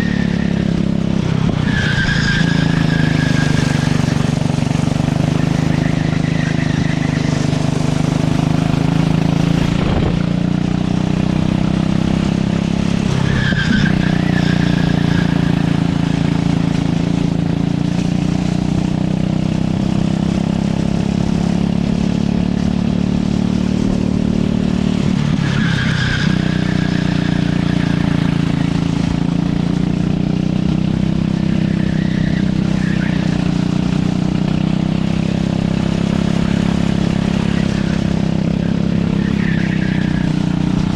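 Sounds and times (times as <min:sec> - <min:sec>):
tyre squeal: 0:00.0 - 0:09.9, 0:13.0 - 0:17.6, 0:25.0 - 0:40.9
racing kart engine: 0:00.0 - 0:40.9.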